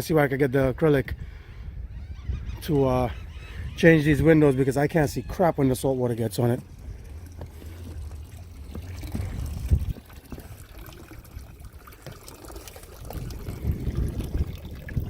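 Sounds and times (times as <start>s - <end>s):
low uneven rumble: 2.4s - 15.0s
water lapping against hull: 2.4s - 15.0s.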